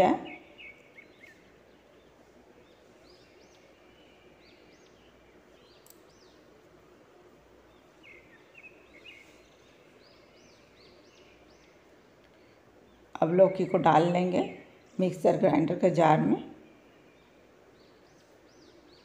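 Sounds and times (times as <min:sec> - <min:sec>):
faint bird chirps: 0:07.7 - 0:13.8.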